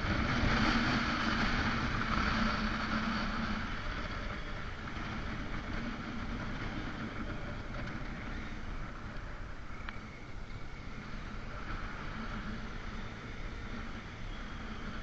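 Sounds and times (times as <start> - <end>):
motorcycle engine running: 0.0 - 15.0
wind noise on microphone: 0.0 - 15.0.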